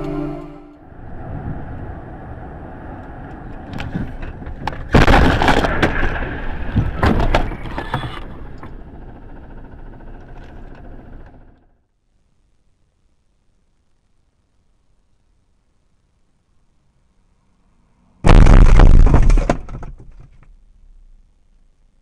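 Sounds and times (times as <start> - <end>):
car driving noise: 0.0 - 11.4
car collision crunching: 3.8 - 8.6, 18.3 - 20.6.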